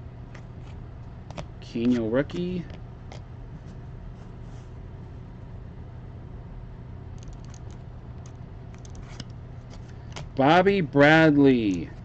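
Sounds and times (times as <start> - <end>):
low background hum: 0.0 - 12.0
cards rustling and clicking: 8.8 - 10.4.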